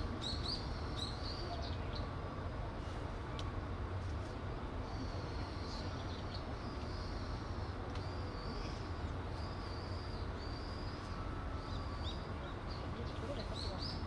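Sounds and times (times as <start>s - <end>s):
small birds chirping: 4.8s - 14.0s.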